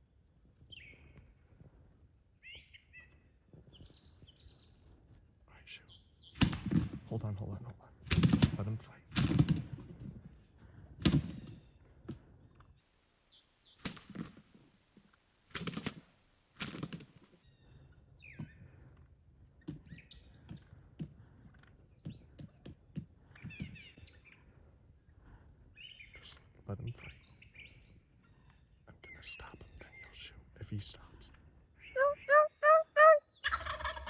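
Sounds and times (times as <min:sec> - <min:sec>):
small birds chirping: 0:00.6 - 0:01.8, 0:02.4 - 0:06.5, 0:10.5 - 0:14.7, 0:17.0 - 0:34.0
turkey wings beating: 0:13.3 - 0:17.4, 0:32.0 - 0:34.0.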